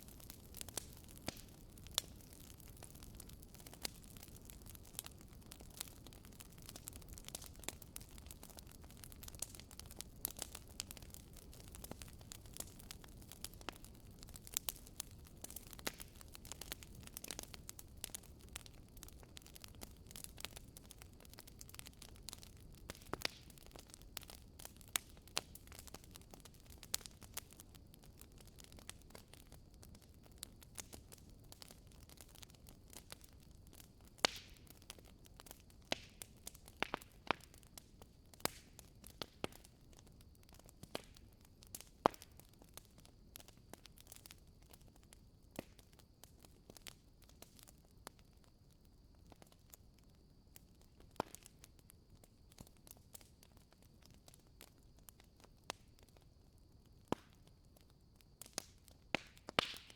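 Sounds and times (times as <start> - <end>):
louder fire snaps: 0.0 - 44.9, 45.5 - 48.2, 50.6 - 51.6, 57.0 - 57.5, 58.4 - 59.9
fireplace fire crackling: 0.0 - 59.9.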